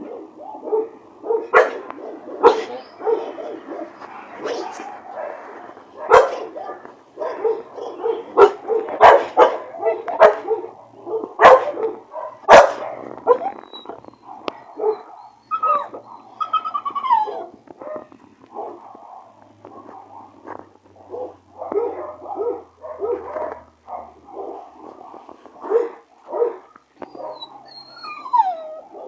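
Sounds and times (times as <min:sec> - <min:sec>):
dog barking: 0:00.0 - 0:13.6, 0:14.2 - 0:16.3, 0:17.2 - 0:27.7.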